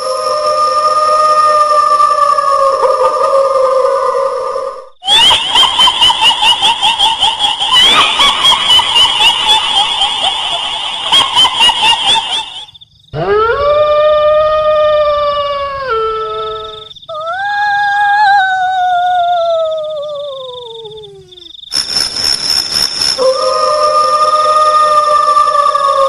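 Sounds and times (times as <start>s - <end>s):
ghostly wail: 0.0s - 21.3s, 23.2s - 26.0s
shrill cackling laugh: 5.0s - 12.8s.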